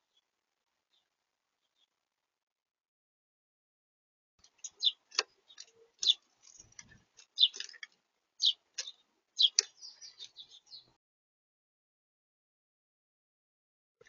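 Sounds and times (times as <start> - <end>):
beaks pecking at seed: 4.4 - 10.9
bird feet on feeder: 4.4 - 10.9.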